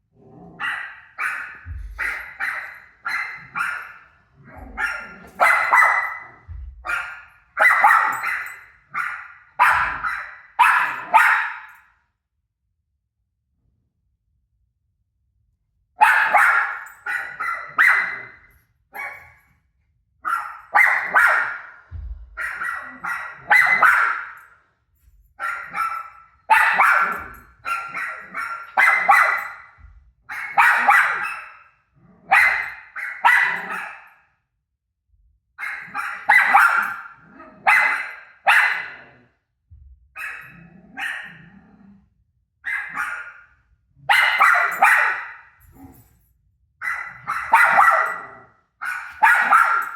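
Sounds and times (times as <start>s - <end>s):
dog barking: 0.4s - 11.9s, 16.0s - 19.4s, 20.2s - 24.6s, 25.4s - 34.3s, 35.6s - 39.3s, 40.2s - 41.6s, 42.6s - 46.1s, 46.8s - 49.9s.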